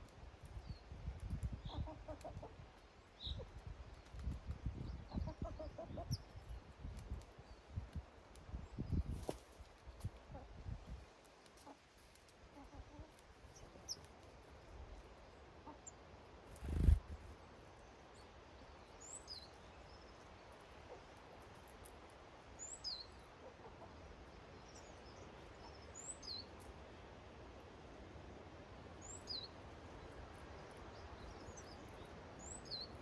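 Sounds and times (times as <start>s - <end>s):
faint outdoor background: 0.0s - 33.0s
small birds chirping: 0.4s - 10.5s, 12.6s - 14.2s, 15.8s - 20.2s, 29.0s - 33.0s.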